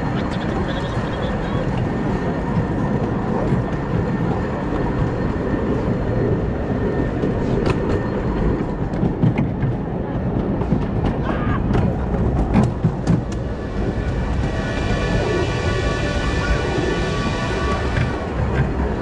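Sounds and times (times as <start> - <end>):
railway cars rolling on track: 0.0 - 19.0
wheels clicking over rails: 7.0 - 19.0.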